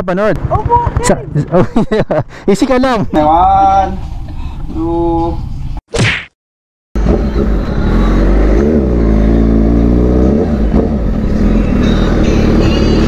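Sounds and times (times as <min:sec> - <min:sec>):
motorcycle engine revving: 0:00.0 - 0:01.6, 0:07.0 - 0:13.0.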